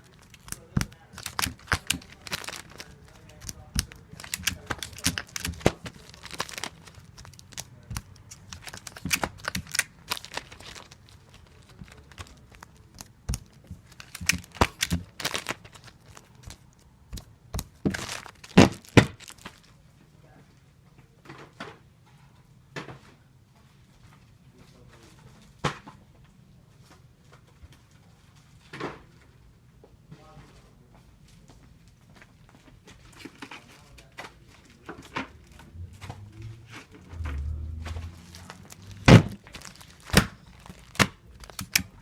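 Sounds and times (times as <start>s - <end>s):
sticky tape ripping: 0.1s - 19.6s, 35.7s - 42.0s.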